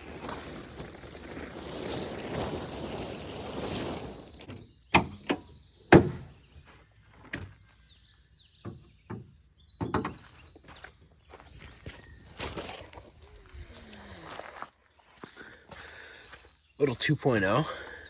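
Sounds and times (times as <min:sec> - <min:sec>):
birds chirping faintly: 0:02.7 - 0:18.0
sharp knocks and thuds: 0:04.5 - 0:06.3.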